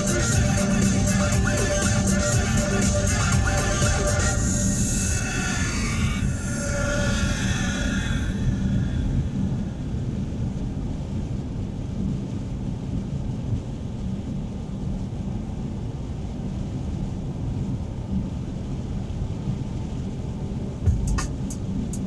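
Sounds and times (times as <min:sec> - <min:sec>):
car driving on highway: 0:00.0 - 0:11.1.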